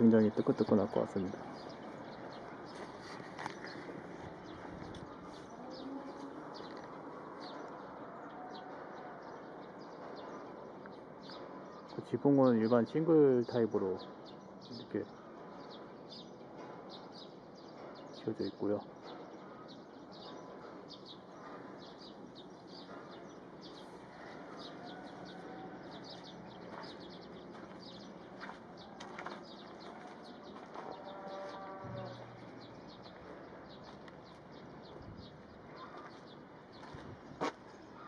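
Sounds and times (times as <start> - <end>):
distant animal calls: 19.0 - 38.0.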